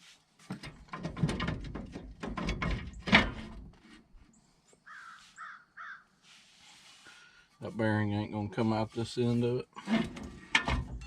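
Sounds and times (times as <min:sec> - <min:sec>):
crow cawing: 0:04.8 - 0:06.1.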